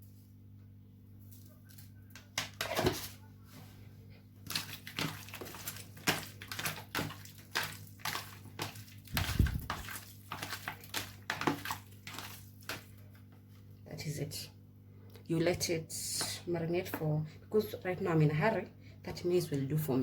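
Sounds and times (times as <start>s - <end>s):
faint steady hum: 0.0s - 20.0s
wet squishing and scraping of meat: 1.2s - 13.7s.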